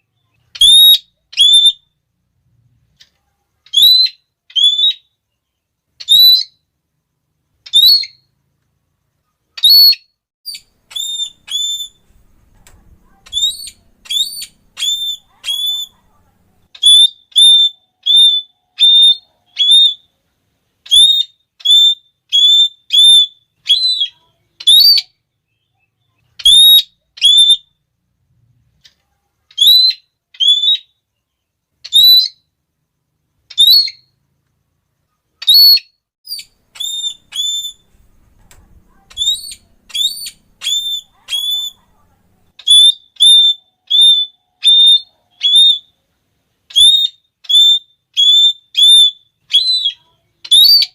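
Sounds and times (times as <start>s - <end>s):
parrot shrill calls: 0.5s - 1.9s, 3.7s - 5.1s, 6.0s - 6.6s, 7.6s - 8.2s, 9.6s - 12.3s, 12.9s - 16.0s, 16.7s - 20.1s, 20.8s - 25.2s, 26.4s - 27.7s, 29.5s - 31.0s, 31.8s - 32.5s, 33.5s - 34.1s, 35.4s - 41.9s, 42.6s - 45.9s, 46.7s - 50.9s.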